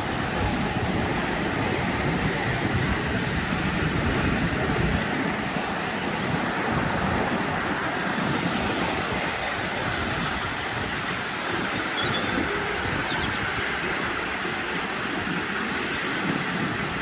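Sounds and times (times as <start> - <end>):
train wheels rumbling on rails: 0.0 - 17.0
wind on microphone: 0.0 - 17.0.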